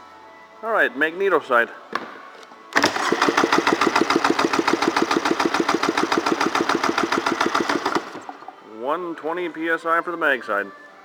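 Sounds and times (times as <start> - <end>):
engine cranked by starter chugging: 2.8 - 8.5.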